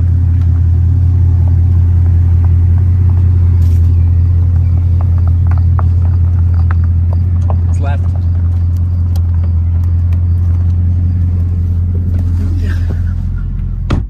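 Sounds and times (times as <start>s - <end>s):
tyres crunching on gravel: 0.0s - 13.9s
car engine idling: 0.0s - 14.0s.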